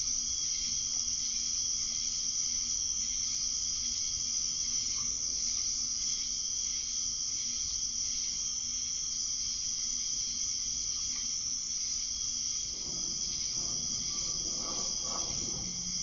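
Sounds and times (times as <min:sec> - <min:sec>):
faint low hum: 0:12.0 - 0:16.0
soft scratchy rustle: 0:12.6 - 0:16.0.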